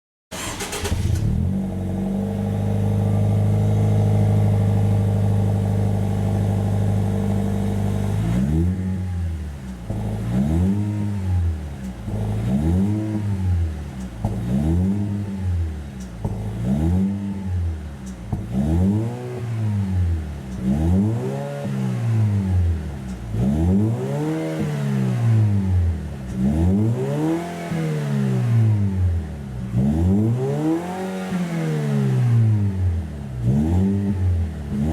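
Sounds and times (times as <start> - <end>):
car engine revving: 0.3 - 34.9
car engine starting: 0.3 - 34.9
car engine idling: 9.0 - 18.6.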